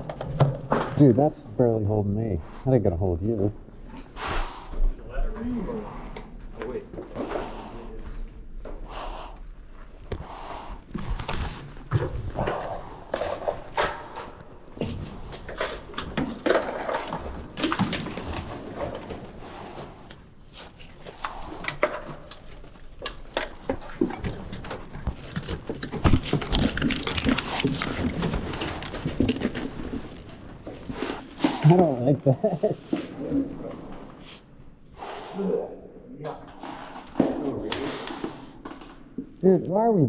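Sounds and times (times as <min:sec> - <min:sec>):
heavy breathing: 0:03.9 - 0:11.4, 0:34.2 - 0:36.0.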